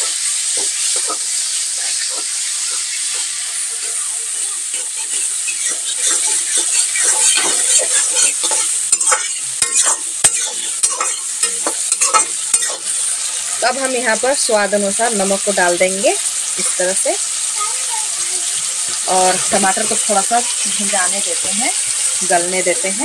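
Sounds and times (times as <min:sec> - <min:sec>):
spatula knocking on pan: 0:00.0 - 0:04.0, 0:04.7 - 0:12.8
metal spatula scraping pan: 0:00.0 - 0:13.3
tomatoes sizzling in hot oil: 0:00.0 - 0:23.0.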